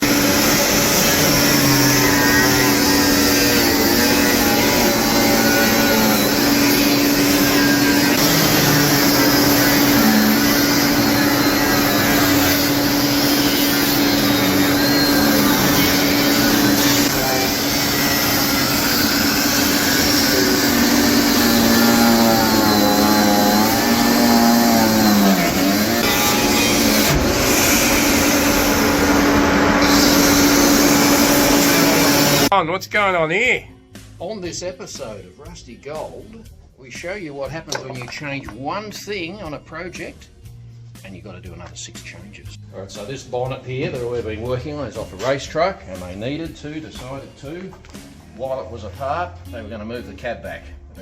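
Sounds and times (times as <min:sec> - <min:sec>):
engine running loudly: 0:00.0 - 0:32.5.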